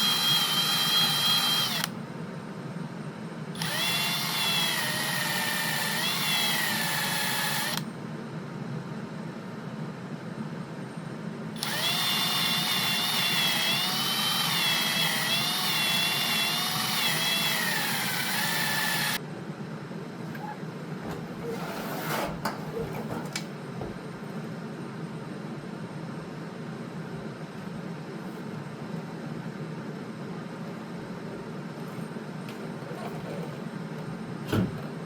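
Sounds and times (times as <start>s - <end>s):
power drill whining: 0.0s - 1.9s, 3.6s - 7.8s, 11.6s - 19.2s.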